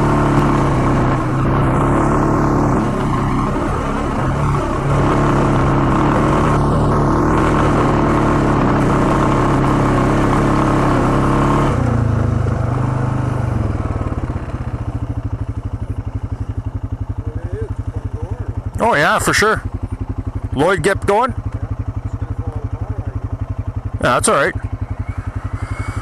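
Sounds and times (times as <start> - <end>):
atv engine under throttle: 0.0 - 26.0
engine pulsing idle: 11.9 - 26.0.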